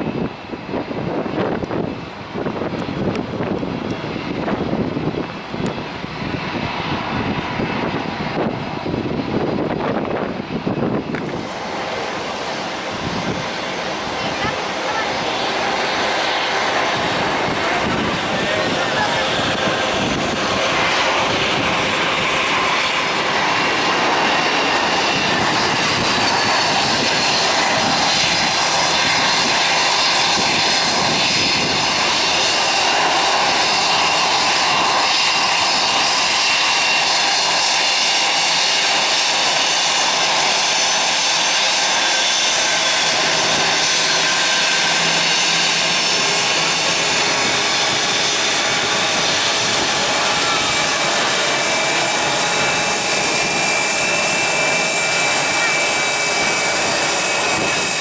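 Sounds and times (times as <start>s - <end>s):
jet engines running: 0.0s - 58.0s.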